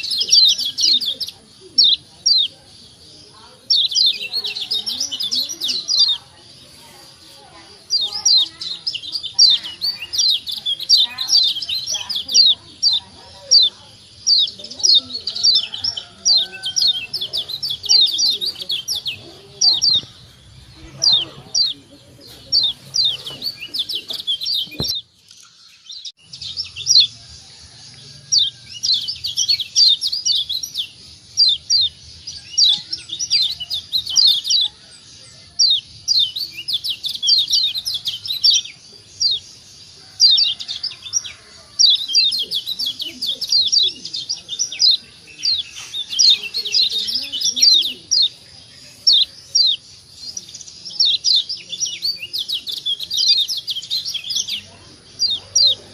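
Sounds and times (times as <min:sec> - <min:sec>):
bird calling in chirping bursts: 0:00.0 - 0:02.5, 0:03.6 - 0:27.2.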